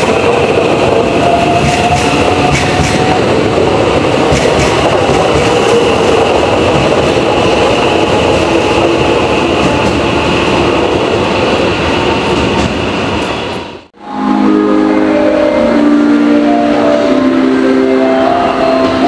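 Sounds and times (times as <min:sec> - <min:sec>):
train wheels rumbling on rail: 0:00.0 - 0:13.9
rail joint clicks: 0:01.2 - 0:03.3, 0:04.2 - 0:07.4.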